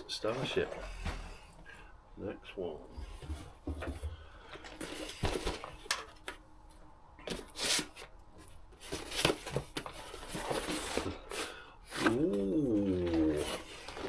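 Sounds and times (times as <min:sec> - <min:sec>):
cardboard rustling and scraping: 0:03.0 - 0:06.3, 0:07.2 - 0:14.0.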